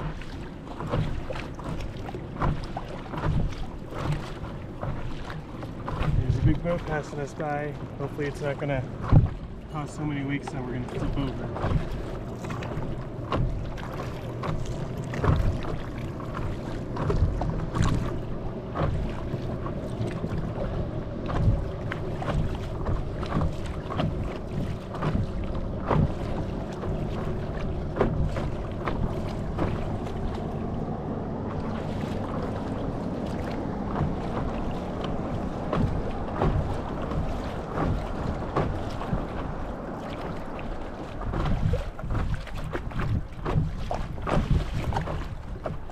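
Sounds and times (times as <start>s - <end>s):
motorboat engine drone: 0.0s - 45.9s
water splashes against board: 0.0s - 45.9s
wind on microphone: 17.0s - 45.9s.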